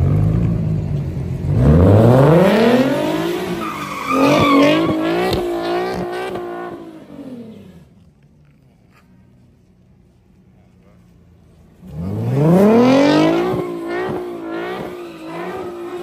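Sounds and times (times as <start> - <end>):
tyres skidding on wet pavement: 0.0 - 7.4, 11.8 - 16.0
car engine revving hard: 1.5 - 7.6, 11.8 - 16.0.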